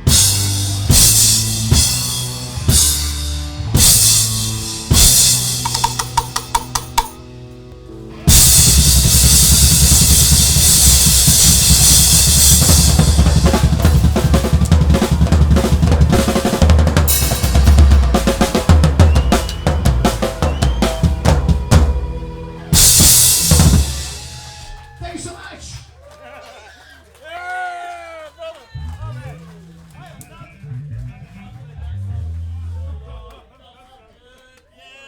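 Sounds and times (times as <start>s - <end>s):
drum kit playing: 0.0s - 7.5s, 8.3s - 24.8s
rock band playing: 0.0s - 24.9s.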